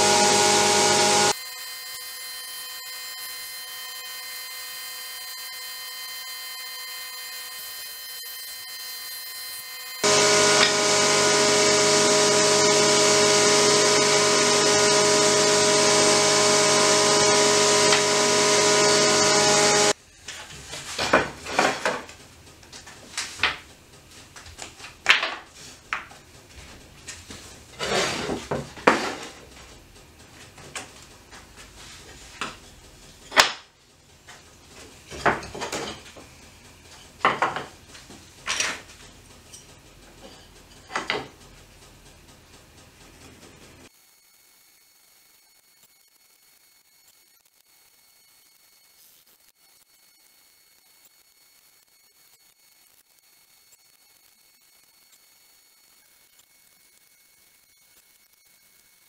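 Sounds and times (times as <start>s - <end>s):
loud steady machine noise: 0.0s - 20.0s
woodworking machine humming: 0.0s - 20.0s.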